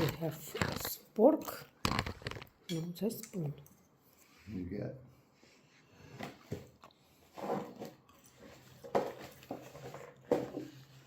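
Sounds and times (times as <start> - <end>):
food packaging rustling and crunching: 0.0 - 2.6, 6.6 - 11.0.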